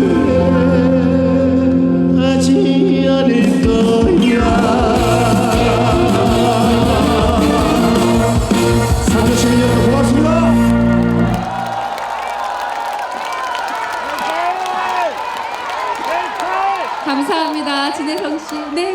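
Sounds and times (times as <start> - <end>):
band playing: 0.0 - 12.2.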